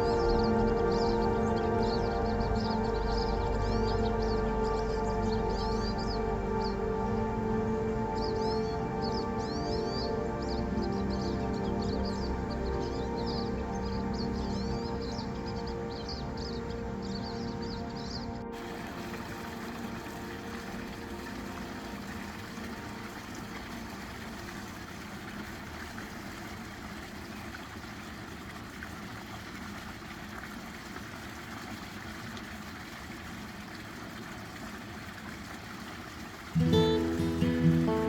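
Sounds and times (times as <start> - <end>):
music: 0.0 - 24.3, 36.6 - 38.0
running water: 0.0 - 38.0.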